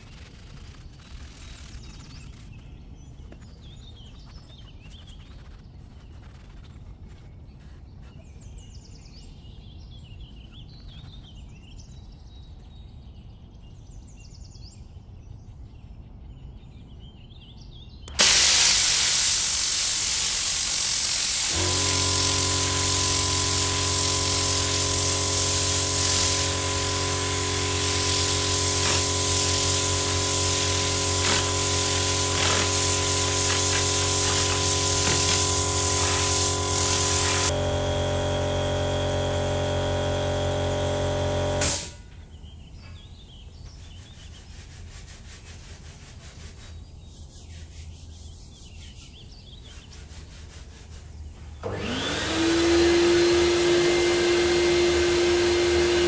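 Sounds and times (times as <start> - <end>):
small motorised hand tool running: 18.1 - 42.0, 51.6 - 56.0.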